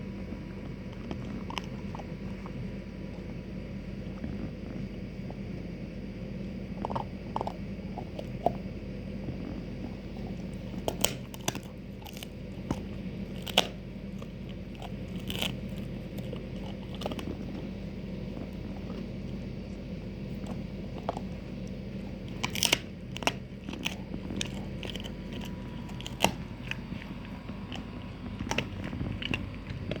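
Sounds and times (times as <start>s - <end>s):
dog gnawing on bone: 0.0s - 30.0s
low hum: 0.0s - 30.0s
bone cracking: 10.4s - 19.4s, 20.3s - 30.0s.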